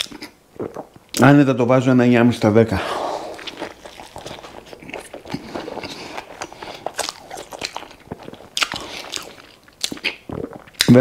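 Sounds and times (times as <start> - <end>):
chewing crispy burger: 3.0 - 11.0
mouth clicks: 3.2 - 11.0.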